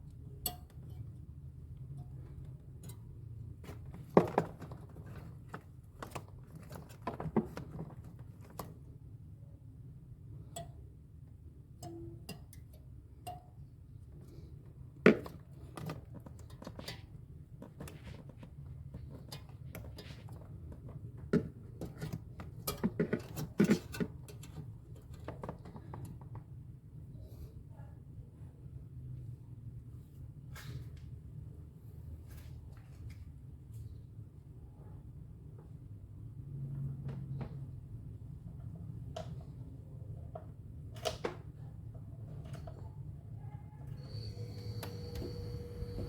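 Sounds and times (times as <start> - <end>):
steady low hum: 44.0 - 46.0.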